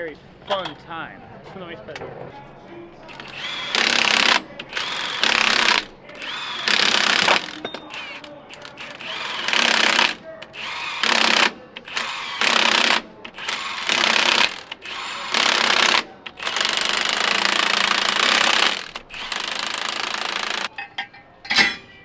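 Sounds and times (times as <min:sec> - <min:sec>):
power tool bursts: 0:03.1 - 0:20.7.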